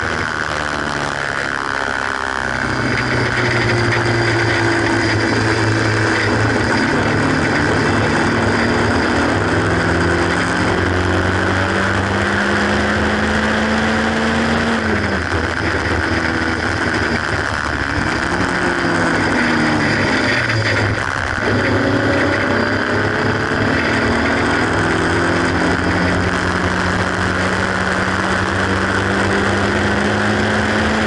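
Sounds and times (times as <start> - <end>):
car engine under power: 0.0 - 31.0
wind and road noise: 0.0 - 31.0.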